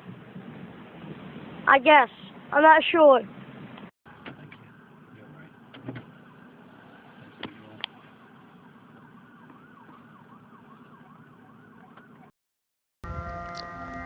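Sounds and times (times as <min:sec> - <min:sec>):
distant emergency siren: 0:04.1 - 0:12.3, 0:13.0 - 0:14.0.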